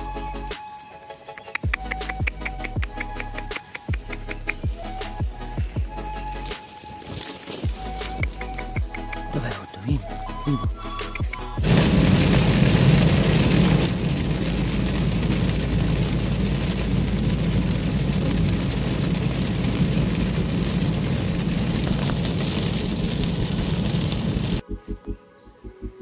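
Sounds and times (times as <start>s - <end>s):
tyres rumbling on wet road: 11.0s - 24.6s
heavy rain drumming on car roof: 11.6s - 24.6s.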